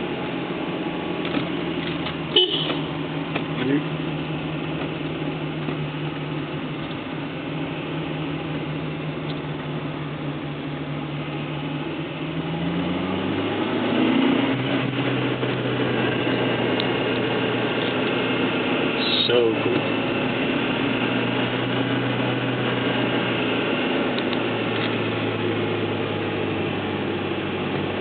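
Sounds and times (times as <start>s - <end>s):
car engine running: 0.0s - 28.0s
road and tyre noise: 0.0s - 28.0s.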